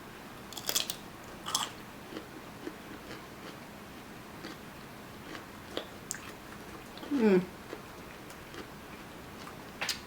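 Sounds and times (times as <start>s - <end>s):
chewing: 5.2s - 10.0s.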